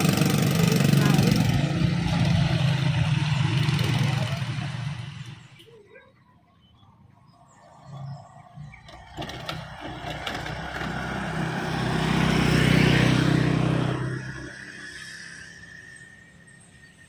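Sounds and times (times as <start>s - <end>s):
vehicle driving past: 7.4s - 17.0s.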